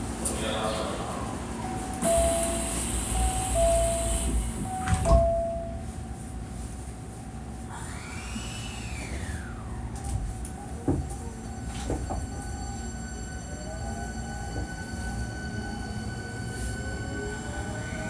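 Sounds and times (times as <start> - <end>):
two-note door chime: 2.0 - 5.9.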